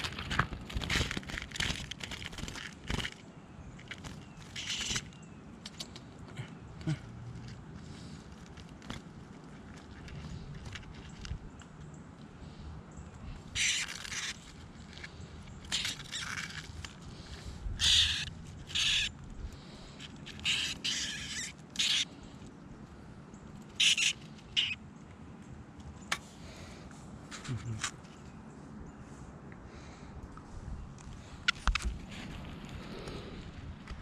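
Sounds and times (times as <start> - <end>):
bird distress squawks: 13.4 - 14.5, 17.8 - 19.1, 20.3 - 22.3, 23.7 - 24.8.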